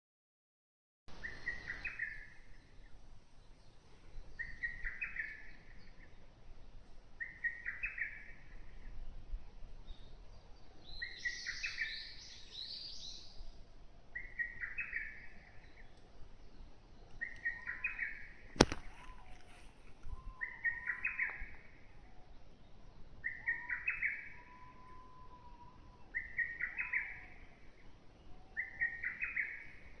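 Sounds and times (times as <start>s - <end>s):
woodland bird singing: 1.1s - 30.0s
bird twittering: 17.1s - 21.7s, 23.2s - 27.4s
sharp click: 18.6s - 18.9s.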